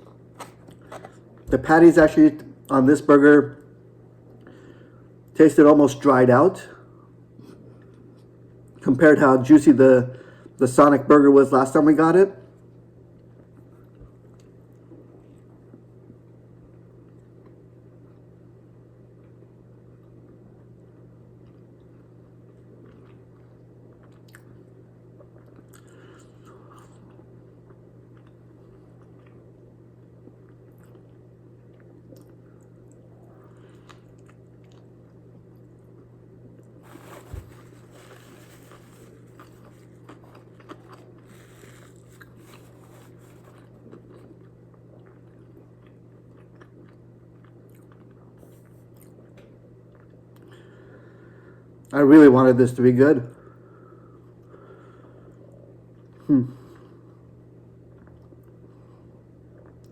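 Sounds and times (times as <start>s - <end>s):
person chewing: 0.0s - 1.3s, 36.8s - 49.3s
steady low hum: 0.0s - 59.9s.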